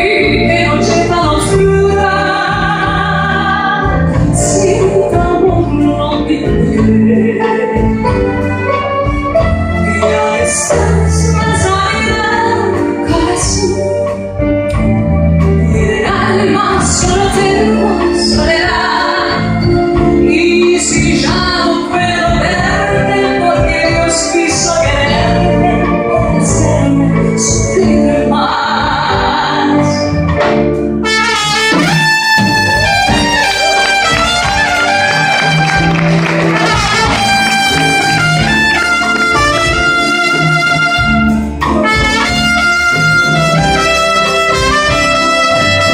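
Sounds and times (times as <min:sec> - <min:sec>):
jazz orchestra playing: 0:00.0 - 0:45.9
live band with singing: 0:00.0 - 0:45.9
steady bass line: 0:00.0 - 0:45.9
brass playing held chords: 0:31.0 - 0:45.9.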